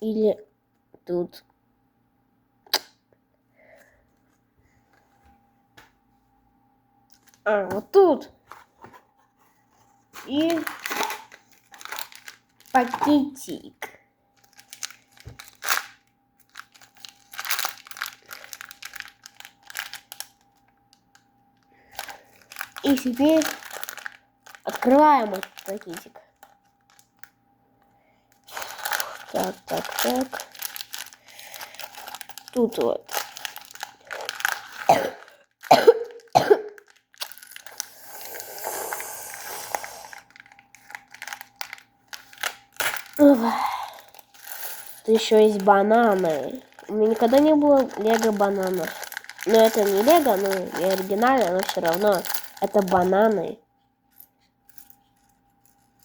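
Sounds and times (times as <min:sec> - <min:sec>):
plastic rustling: 0:08.4 - 0:13.6, 0:14.3 - 0:27.4, 0:28.3 - 0:38.0, 0:39.7 - 0:53.6
plastic bag crinkling: 0:10.1 - 0:13.6, 0:14.3 - 0:27.4, 0:28.3 - 0:38.2, 0:39.5 - 0:53.6
person coughing: 0:34.9 - 0:36.8.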